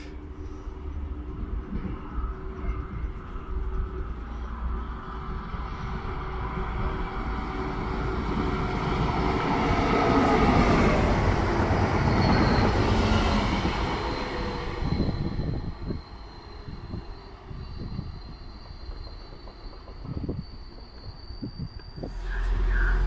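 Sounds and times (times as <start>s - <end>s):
train rumbling past: 0.0s - 23.0s
thin high whine: 15.1s - 23.0s.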